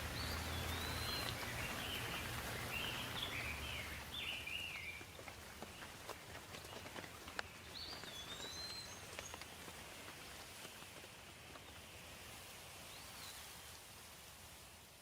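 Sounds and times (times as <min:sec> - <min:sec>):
bird chirping: 0:00.0 - 0:09.5
light rain falling: 0:00.0 - 0:15.0.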